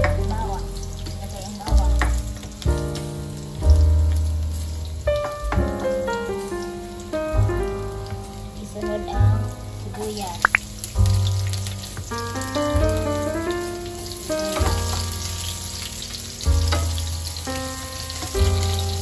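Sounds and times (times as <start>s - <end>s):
background music with bass line: 0.0s - 8.6s, 10.4s - 19.0s
garlic and onion sizzling in oil: 0.0s - 19.0s
tongs stirring in a pan: 14.0s - 19.0s.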